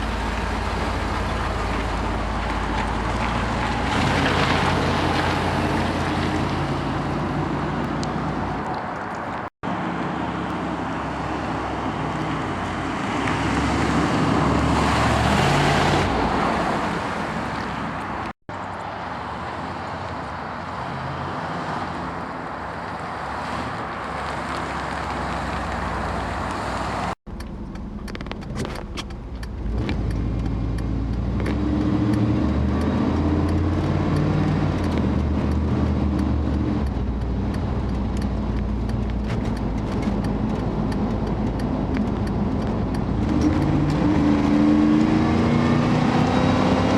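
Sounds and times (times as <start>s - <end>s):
light clicks ticking: 27.3s - 44.0s.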